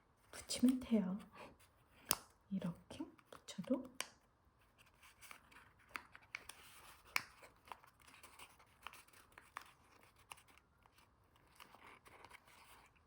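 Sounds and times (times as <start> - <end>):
paper rustling and crinkling: 4.7 - 13.0.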